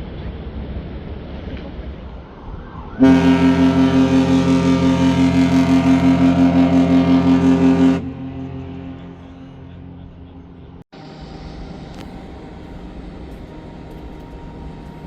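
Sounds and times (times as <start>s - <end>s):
wind: 0.0s - 15.0s
water noise: 0.3s - 15.0s
ship horn blast: 3.0s - 15.0s.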